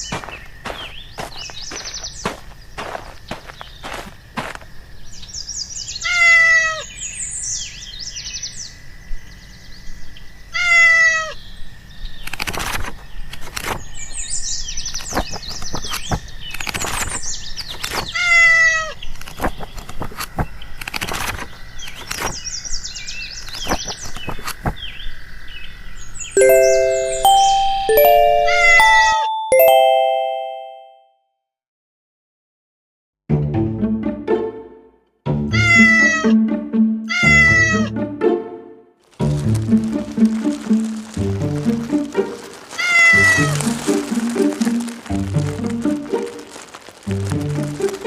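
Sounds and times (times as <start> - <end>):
birdsong chirping: 0.0 - 10.3
cat meowing: 6.0 - 6.8, 10.6 - 11.4, 35.5 - 36.3, 37.1 - 37.9, 42.8 - 43.6.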